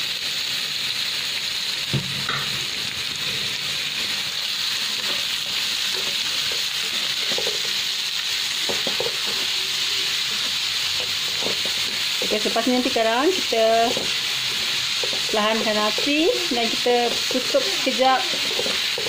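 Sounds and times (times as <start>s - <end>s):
vegetables sizzling in hot oil: 0.0s - 19.0s
knock against a pan: 1.9s - 2.5s
spatula stirring in a wok: 3.1s - 19.0s.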